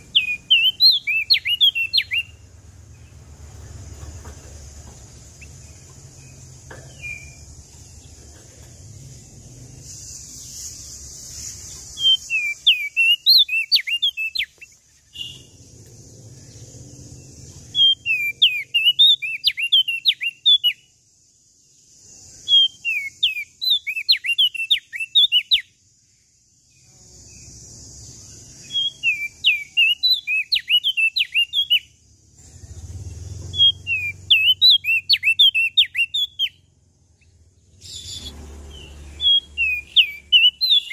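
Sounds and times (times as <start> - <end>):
songbird singing whistled notes: 0.0 - 32.0, 32.6 - 40.9
steady hiss: 2.8 - 12.7.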